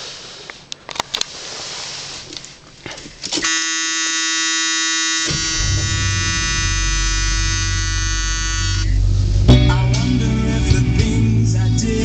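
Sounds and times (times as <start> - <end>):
dashboard warning buzzer: 3.4 - 9.0
car engine starting and rumbling: 5.2 - 12.0.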